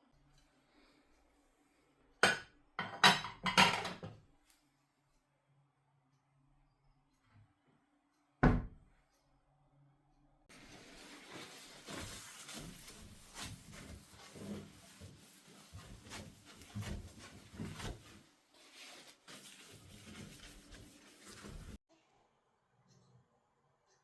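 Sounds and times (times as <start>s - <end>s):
rubbing and scraping: 10.5s - 21.8s.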